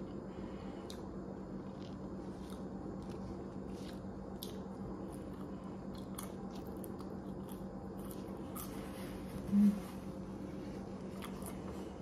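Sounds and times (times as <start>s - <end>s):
person chewing: 0.0s - 9.7s, 10.8s - 12.0s
steady low hum: 0.0s - 12.0s.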